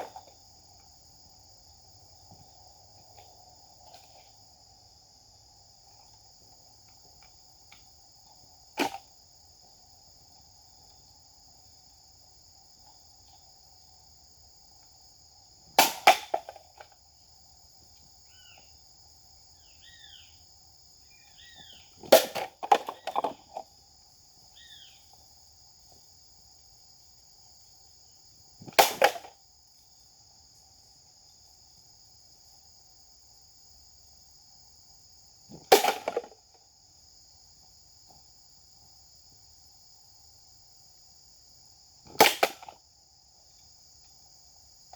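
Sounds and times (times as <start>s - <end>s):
high insect drone: 0.0s - 44.9s
faint bird chirps: 18.2s - 18.8s, 19.6s - 20.4s, 21.0s - 22.0s, 24.5s - 25.2s.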